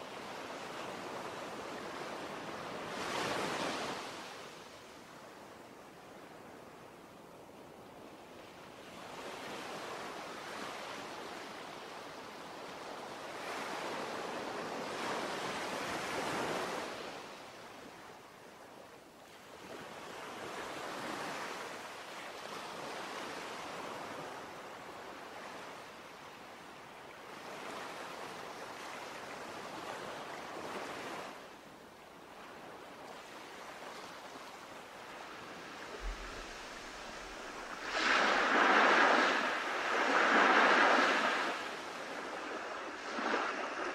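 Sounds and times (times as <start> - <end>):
ocean waves washing in: 33.7 - 43.9.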